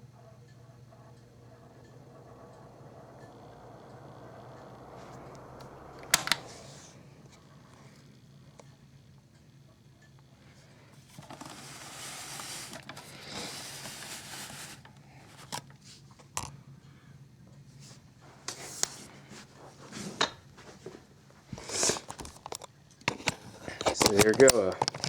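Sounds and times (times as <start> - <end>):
fan motor hum: 0.0 - 25.0
air hiss: 0.8 - 8.6.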